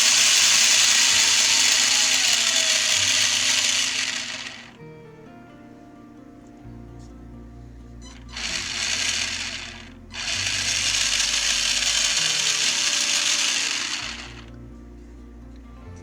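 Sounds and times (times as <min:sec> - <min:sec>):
electric motor spinning up: 0:00.0 - 0:04.9, 0:08.0 - 0:14.6.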